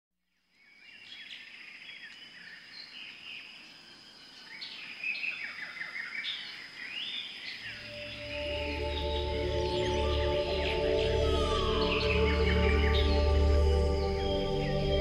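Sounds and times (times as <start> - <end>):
birds chirping: 0.9 - 15.0
high-pitched tone: 7.8 - 15.0.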